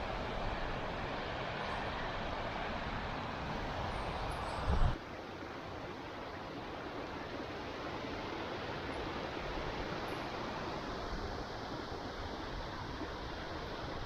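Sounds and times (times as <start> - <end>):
wind rumble on microphone: 3.4 - 5.0.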